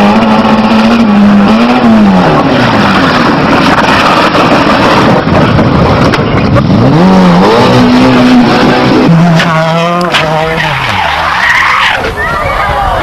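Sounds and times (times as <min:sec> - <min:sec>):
rally car engine revving: 0:00.0 - 0:12.1.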